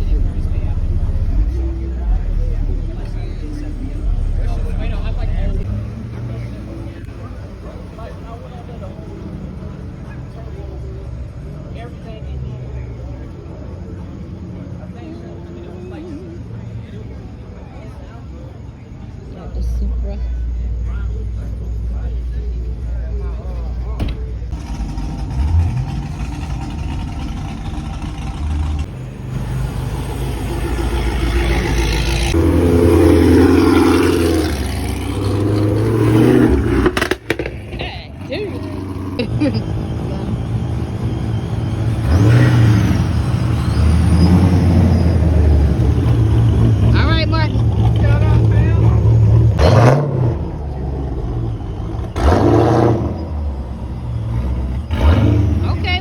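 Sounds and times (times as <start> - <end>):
car engine revving: 0.0 - 12.0, 23.6 - 56.0.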